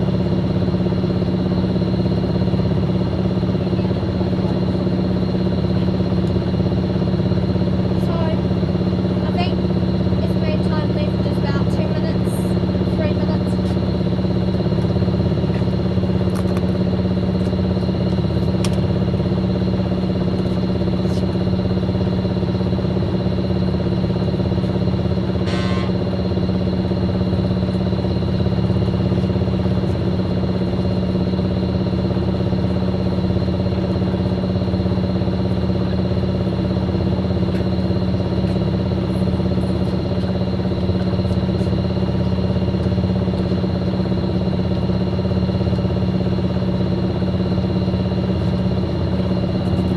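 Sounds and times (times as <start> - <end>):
high steady whine: 0.0 - 49.9
washing machine motor hum: 0.0 - 49.9
short high sound: 25.4 - 26.0.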